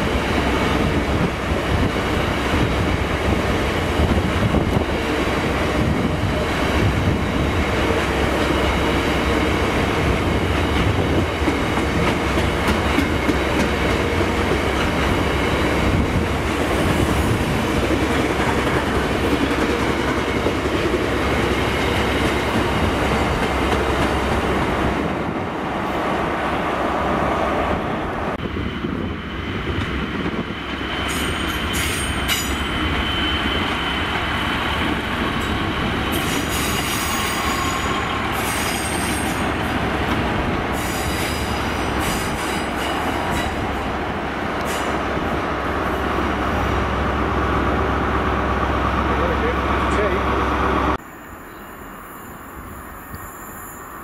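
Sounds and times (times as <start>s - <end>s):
train wheels squealing: 30.4s - 39.7s, 40.7s - 43.6s, 51.1s - 54.0s.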